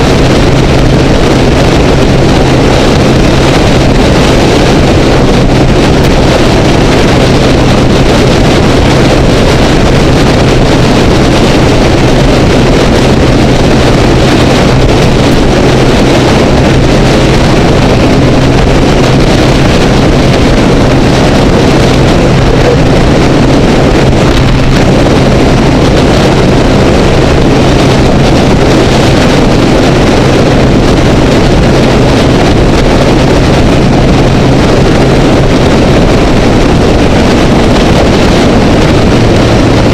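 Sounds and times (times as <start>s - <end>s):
motorcycle engine drone: 0.0s - 39.9s
wind and road rush: 0.0s - 39.9s.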